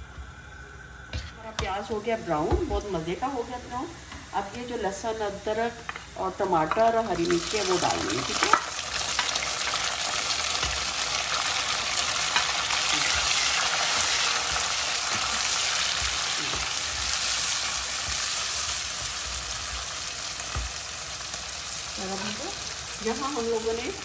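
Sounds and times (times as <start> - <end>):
food sizzling in hot oil: 0.0 - 24.0
spatula scraping and knocking pan: 12.2 - 20.9.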